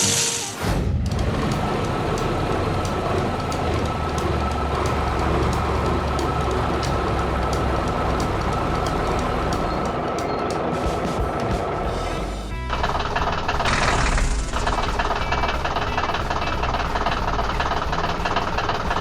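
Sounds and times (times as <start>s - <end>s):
heavy vehicle engine rumble: 0.9s - 19.0s
light regular ticking: 1.2s - 10.7s.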